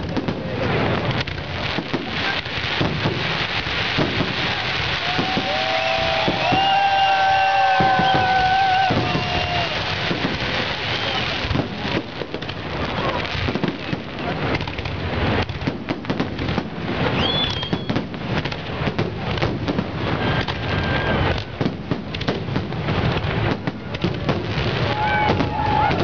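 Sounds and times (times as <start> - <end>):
fireworks bursts and crackling: 0.0 - 26.0
firework whistling glide: 4.5 - 11.5, 17.0 - 18.1, 20.0 - 21.6.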